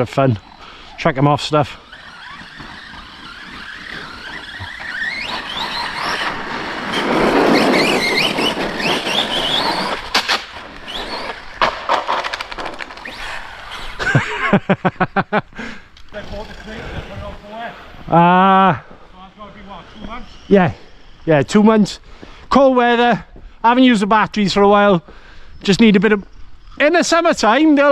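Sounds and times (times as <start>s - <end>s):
electric motors whining: 0.0s - 11.6s, 12.3s - 21.7s
tyres rushing on dirt: 0.0s - 15.4s
toy trucks knocking and clattering: 1.4s - 14.2s.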